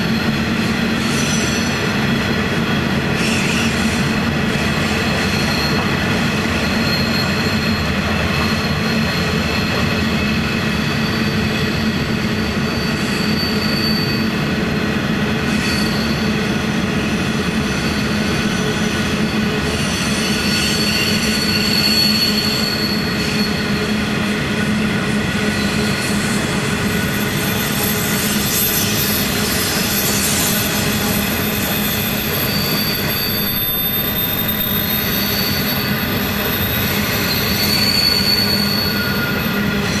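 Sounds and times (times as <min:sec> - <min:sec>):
wheels squealing: 0:04.8 - 0:14.4, 0:17.7 - 0:23.9, 0:25.5 - 0:40.0.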